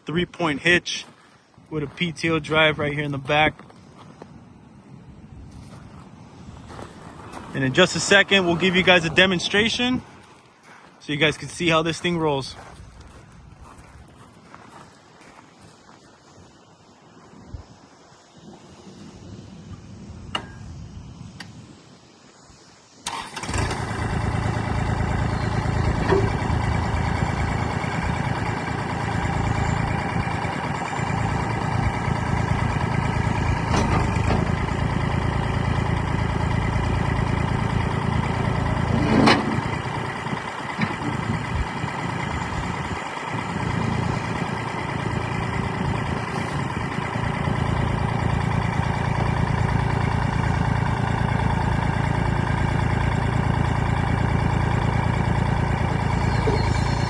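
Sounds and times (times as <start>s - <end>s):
diesel engine running: 0.0s - 14.2s, 23.0s - 57.0s
sharp metallic clank: 20.3s - 20.7s.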